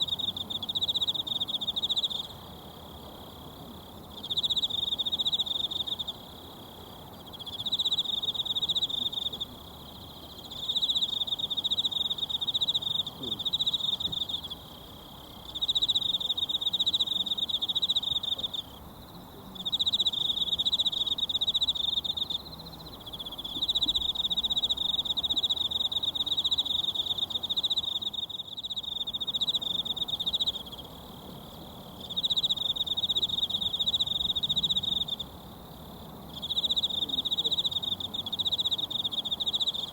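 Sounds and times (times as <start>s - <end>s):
insect trilling: 19.6s - 31.2s, 32.0s - 35.3s, 36.3s - 39.9s.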